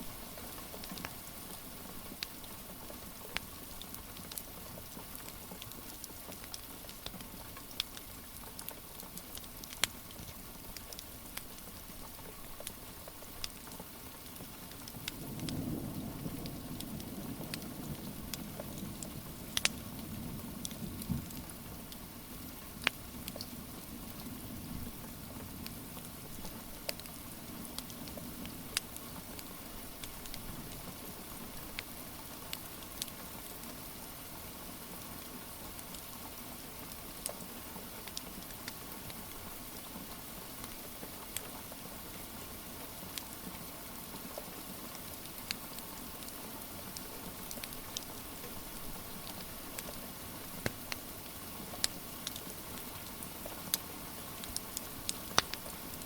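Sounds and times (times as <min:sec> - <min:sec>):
wood fire crackling and popping: 0:00.2 - 0:15.6, 0:16.4 - 0:22.0, 0:22.8 - 0:24.2, 0:25.0 - 0:33.6, 0:35.7 - 0:36.0, 0:36.9 - 0:41.5, 0:44.9 - 0:56.0
rain hissing: 0:09.9 - 0:56.0.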